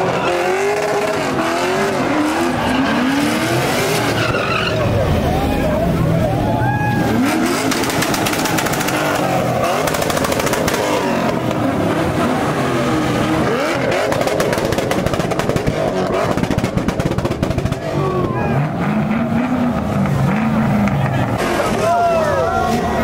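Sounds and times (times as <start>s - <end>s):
car engine revving hard: 0.0s - 5.3s, 7.0s - 22.0s
tyres spinning: 7.0s - 11.7s.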